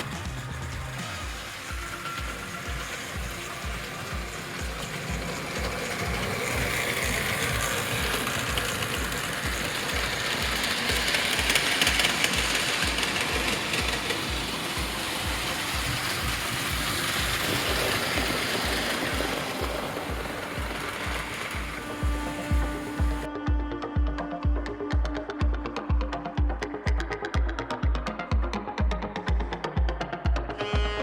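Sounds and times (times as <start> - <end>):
model train whirring and clattering: 0.0 - 23.9
music with low beat: 0.0 - 31.0.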